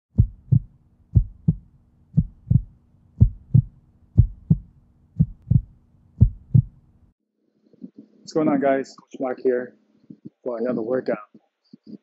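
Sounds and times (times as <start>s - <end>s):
heartbeat thumps: 0.1s - 6.8s, 10.1s - 10.4s.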